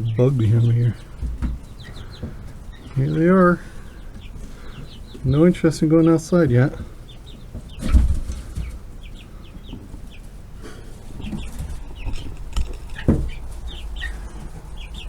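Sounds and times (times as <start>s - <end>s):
chicks peeping: 0.0s - 15.0s
dull bumps: 6.7s - 15.0s.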